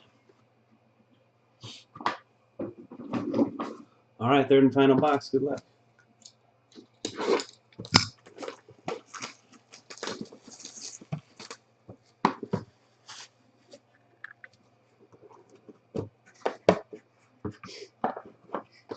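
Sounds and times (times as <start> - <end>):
packaging crinkling and tearing: 7.1 - 11.6.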